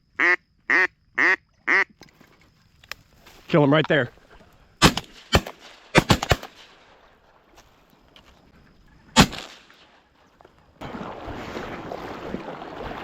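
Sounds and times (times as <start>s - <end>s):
shotgun shots: 4.8s - 6.8s, 9.2s - 9.9s.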